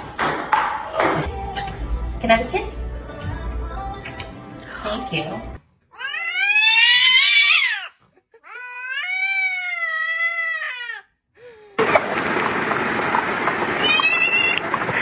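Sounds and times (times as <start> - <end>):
cat meowing: 5.9 - 11.1, 13.8 - 14.6.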